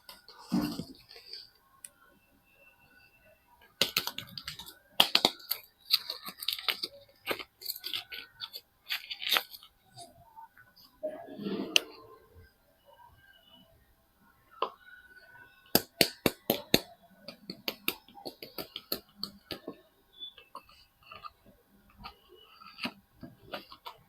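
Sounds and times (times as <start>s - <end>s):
packaging crackling and rustling: 3.8s - 10.1s.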